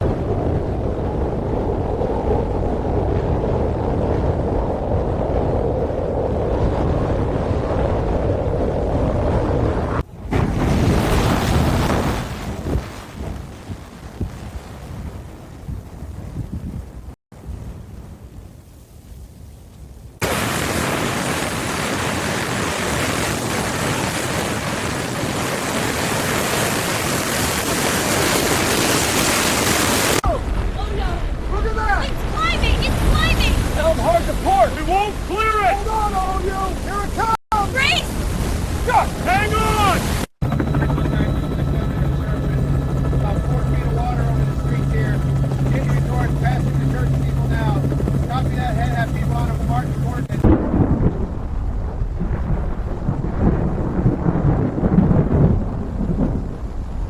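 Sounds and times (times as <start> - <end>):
wind buffeting microphone: 0.0 - 57.0
rough water rushing: 20.2 - 51.3.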